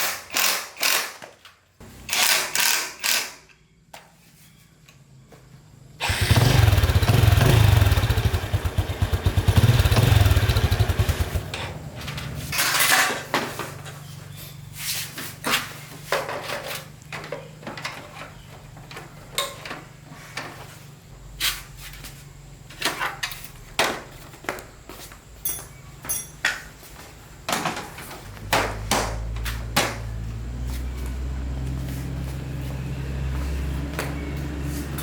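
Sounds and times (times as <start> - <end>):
metal tools knocking and clinking: 25.4 - 26.7.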